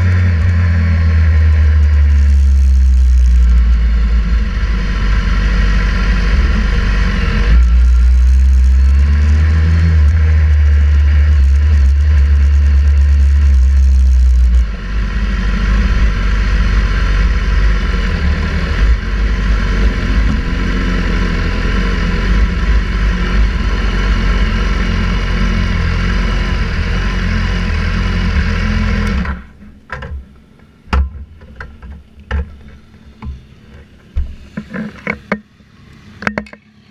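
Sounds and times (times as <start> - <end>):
wind rumble: 0.0 - 27.0
motorcycle engine running: 0.0 - 36.6
clicks and knocks: 29.9 - 35.4.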